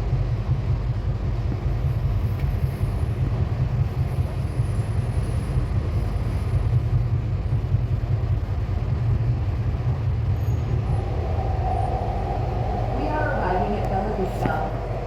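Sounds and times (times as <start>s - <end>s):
train wheels rumbling: 0.0s - 15.0s
mid-pitched hum: 10.6s - 15.0s.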